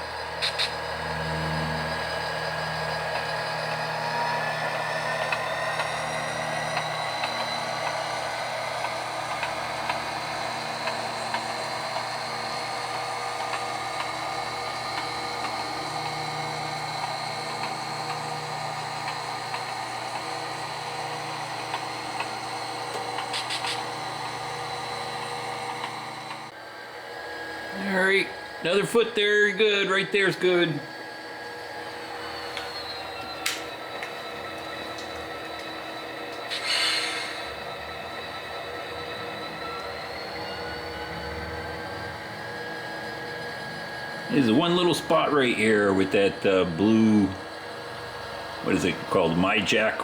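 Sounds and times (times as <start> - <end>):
model train diesel engine sound: 0.0 - 50.0.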